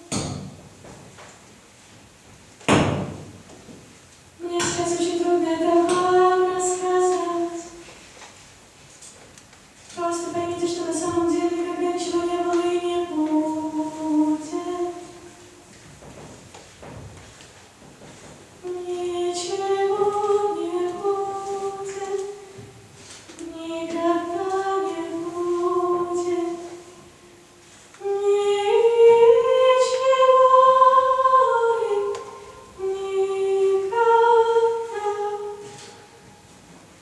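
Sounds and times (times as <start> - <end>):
woman singing unaccompanied: 4.4 - 7.9, 9.9 - 15.7, 18.6 - 22.8, 23.4 - 36.2.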